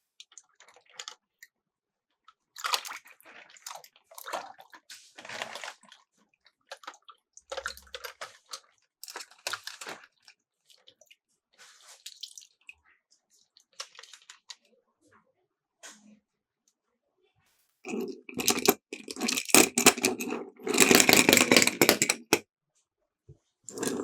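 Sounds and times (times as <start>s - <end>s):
toy cars clattering down plastic: 17.9s - 22.4s, 23.7s - 24.0s.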